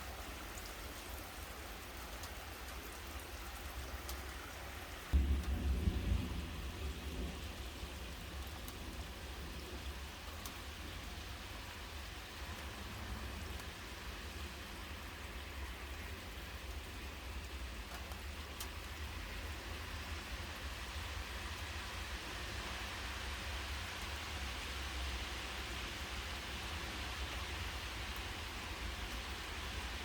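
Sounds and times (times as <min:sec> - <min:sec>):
steady rain hiss: 0:00.0 - 0:30.0
sharp rain drop ticks: 0:02.0 - 0:04.4, 0:05.1 - 0:11.6, 0:12.4 - 0:21.8, 0:23.3 - 0:24.2, 0:27.8 - 0:29.4
low rumble: 0:05.2 - 0:09.0.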